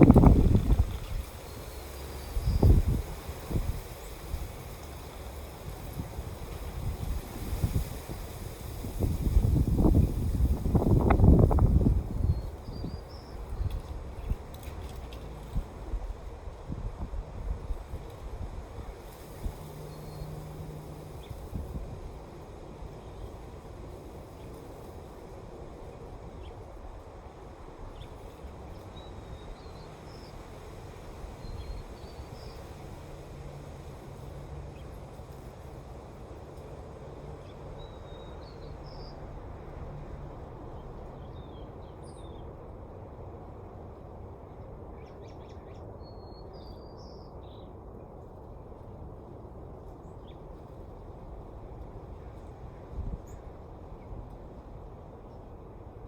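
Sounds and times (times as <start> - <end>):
steady wind rushing: 0.0 - 14.5, 15.2 - 35.0.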